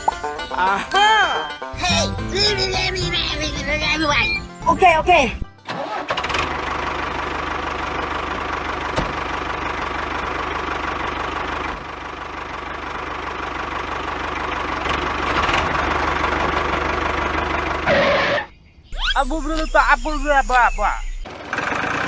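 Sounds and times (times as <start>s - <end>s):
small tractor engine chugging: 5.8s - 17.9s, 19.0s - 22.0s.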